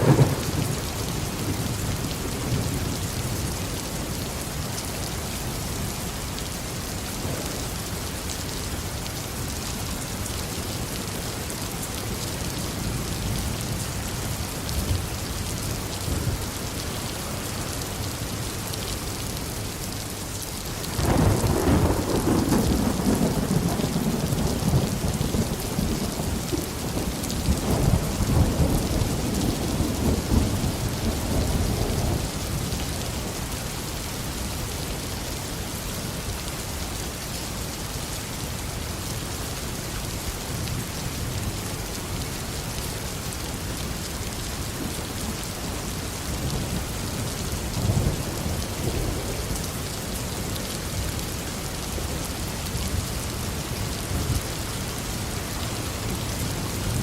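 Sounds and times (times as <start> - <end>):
thunder rumbling: 0.0 - 2.8, 20.9 - 33.4
heavy rain falling: 0.0 - 57.0.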